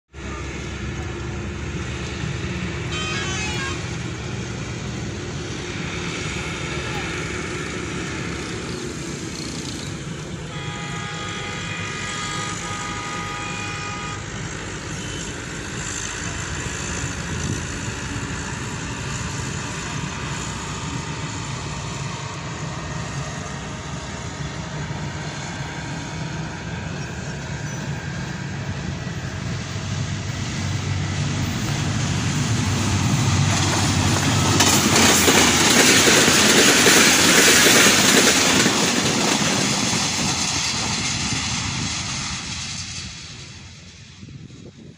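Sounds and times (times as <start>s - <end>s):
locomotive engine rumble: 0.1s - 44.9s
train wheels on rails: 0.1s - 44.9s
train horn: 2.8s - 4.4s, 10.4s - 16.2s.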